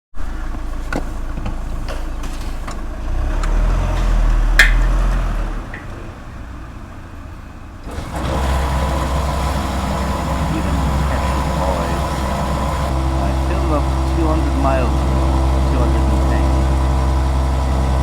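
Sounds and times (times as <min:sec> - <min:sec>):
motorcycle engine running: 0:00.2 - 0:18.0.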